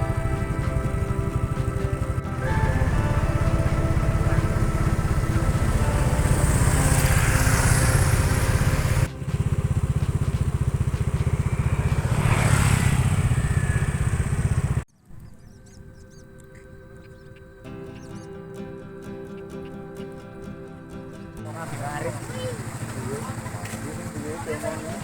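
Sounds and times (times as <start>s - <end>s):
background music: 0.0s - 12.9s, 15.8s - 25.0s
motorcycle engines running: 0.0s - 14.9s, 17.0s - 25.0s
vehicles passing: 0.0s - 14.9s, 16.2s - 25.0s.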